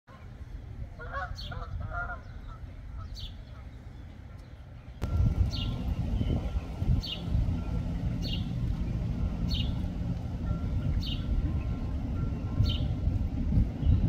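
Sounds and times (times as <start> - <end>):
steady low rumble: 0.1 - 14.0
bird chirping: 2.2 - 13.0.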